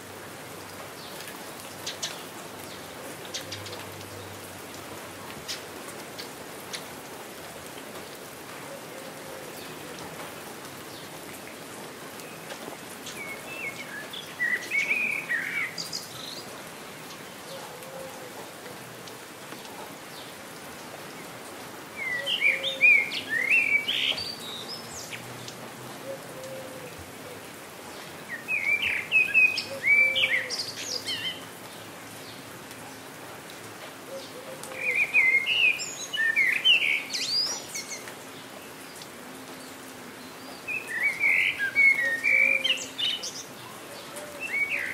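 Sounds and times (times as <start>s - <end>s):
steady rain falling: 0.0s - 44.9s
songbird chirping: 10.7s - 17.8s, 21.9s - 27.0s, 28.0s - 32.8s, 34.1s - 44.9s.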